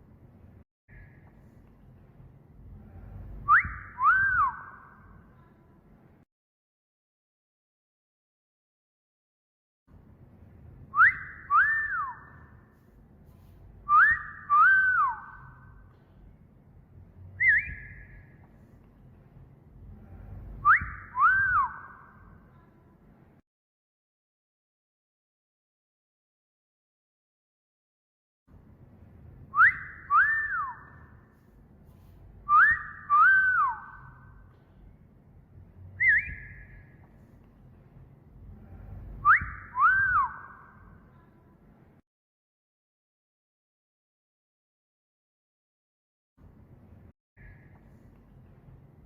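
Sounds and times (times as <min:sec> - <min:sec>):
short wavering whistle: 0:03.1 - 0:05.2, 0:10.9 - 0:12.5, 0:13.8 - 0:15.9, 0:17.4 - 0:18.4, 0:20.2 - 0:22.3, 0:29.5 - 0:31.1, 0:32.4 - 0:34.4, 0:35.9 - 0:37.0, 0:38.6 - 0:40.8
wolf whistle: 0:03.4 - 0:05.1, 0:10.9 - 0:12.6, 0:13.8 - 0:15.8, 0:17.4 - 0:18.4, 0:20.5 - 0:22.3, 0:29.5 - 0:31.1, 0:32.4 - 0:34.3, 0:36.0 - 0:37.0, 0:39.0 - 0:40.8.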